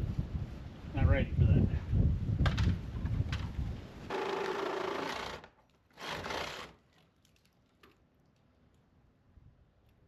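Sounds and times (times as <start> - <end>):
wind rumble on microphone: 0.0 - 4.1.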